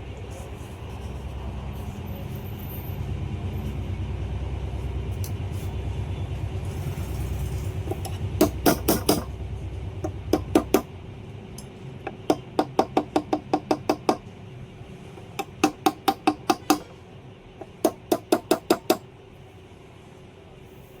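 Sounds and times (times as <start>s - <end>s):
hammer tapping on metal: 7.9s - 10.9s, 12.1s - 14.3s, 15.2s - 16.9s, 17.6s - 19.0s.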